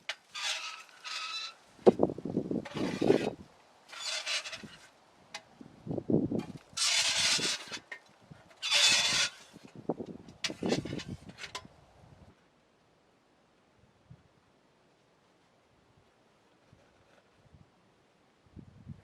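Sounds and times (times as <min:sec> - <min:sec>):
camping gear rustling and scraping: 0:00.0 - 0:11.7, 0:16.4 - 0:17.5.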